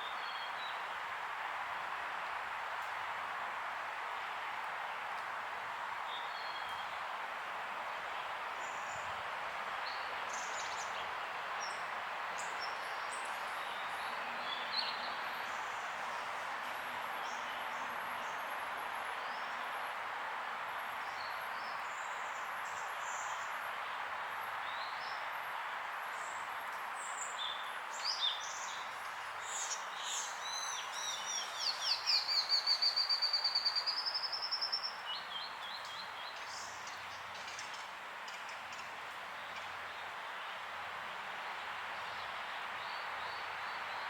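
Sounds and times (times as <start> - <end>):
background hiss: 0.0 - 44.0
birds calling and singing: 27.1 - 40.1.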